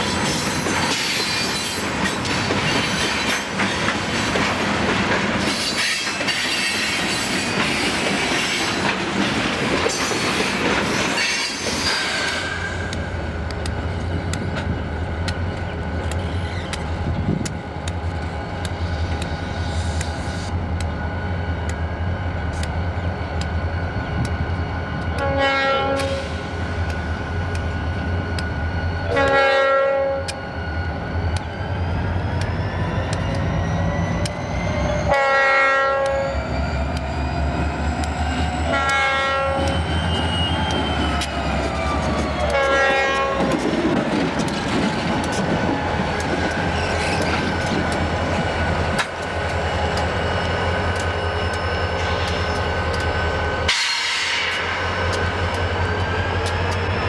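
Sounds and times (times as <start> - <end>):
wheels clicking over rail joints: 0.2 - 21.0, 36.0 - 57.0
train air horn blasts: 25.2 - 26.5, 29.1 - 30.4, 35.1 - 36.3, 38.7 - 39.7, 42.5 - 43.6, 53.7 - 54.8.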